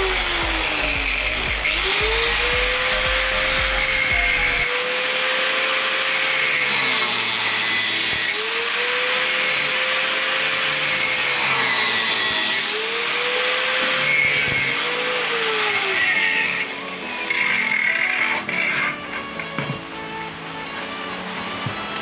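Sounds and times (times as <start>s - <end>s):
power tool cutting steel: 0.0s - 22.0s
steady grinding hiss: 0.0s - 22.0s.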